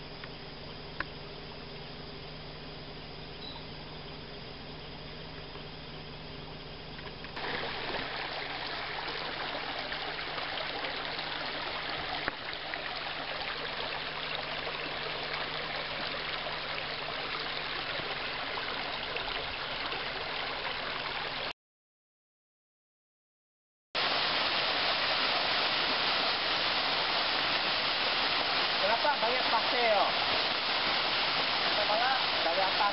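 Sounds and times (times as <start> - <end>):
waterfall rushing: 7.4 - 12.2, 24.0 - 32.9.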